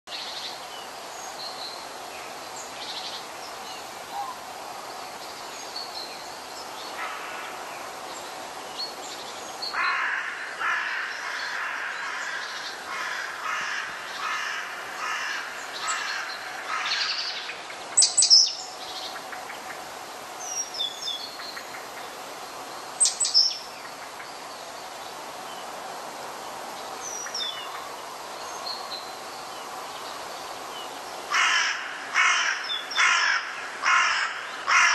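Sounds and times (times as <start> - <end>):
outdoor background noise: 0.1 - 34.9
harsh crow-like calls: 7.0 - 7.6, 9.7 - 17.4, 31.3 - 34.9.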